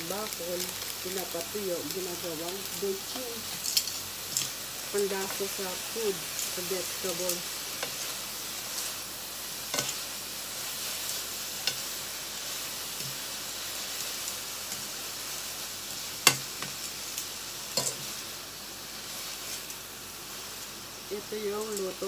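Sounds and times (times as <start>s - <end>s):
food sizzling in oil: 0.0s - 22.0s
utensils clacking against pan: 9.7s - 10.0s, 17.8s - 18.1s.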